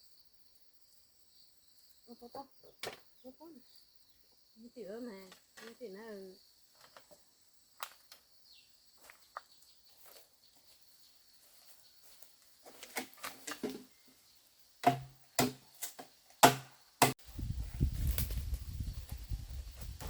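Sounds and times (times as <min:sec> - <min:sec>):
loud sharp knocks with thuds: 0:14.8 - 0:15.6, 0:16.4 - 0:17.2.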